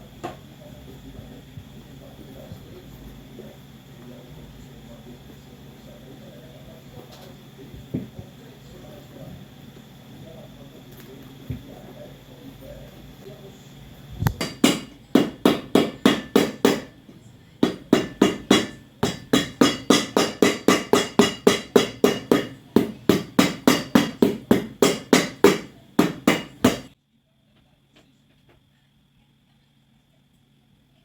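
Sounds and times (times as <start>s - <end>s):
hammer tapping boot sole: 14.2s - 16.9s, 17.6s - 26.9s.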